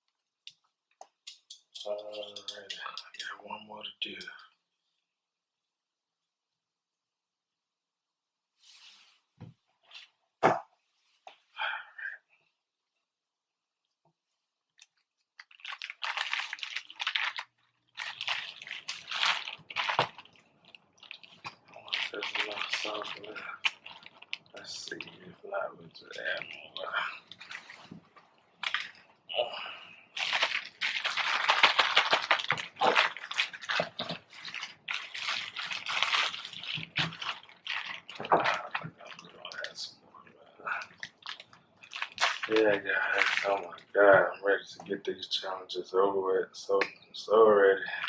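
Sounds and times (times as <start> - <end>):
crunchy squishy food handling: 14.6 - 43.9.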